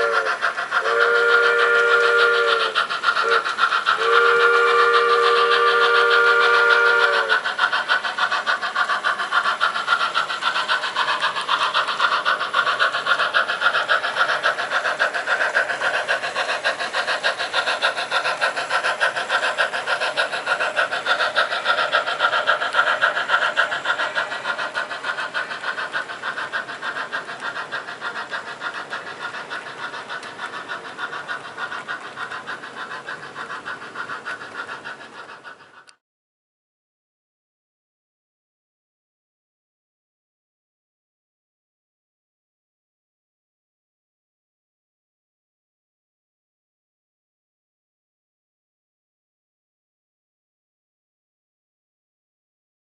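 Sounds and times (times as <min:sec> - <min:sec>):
model train steam whistle: 0:00.0 - 0:07.7
rapid steam locomotive chuffing: 0:00.0 - 0:36.0.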